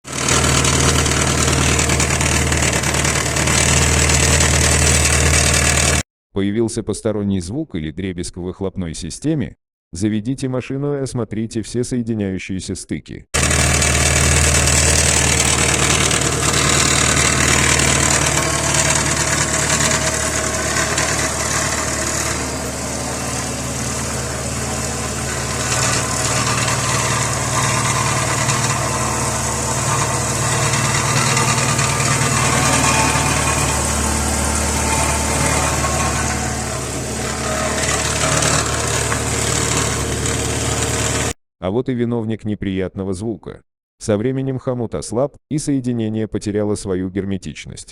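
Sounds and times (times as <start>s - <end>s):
exhaust pipes rattling: 0.0s - 6.0s, 13.4s - 41.2s
exhaust gas hissing: 13.4s - 38.1s
car engine idling: 13.4s - 41.3s.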